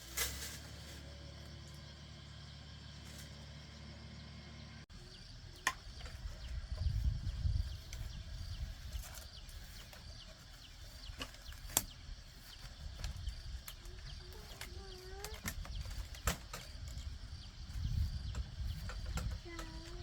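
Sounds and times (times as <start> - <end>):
faint insect chirping: 0.0 - 20.0
low steady rumble: 0.0 - 20.0.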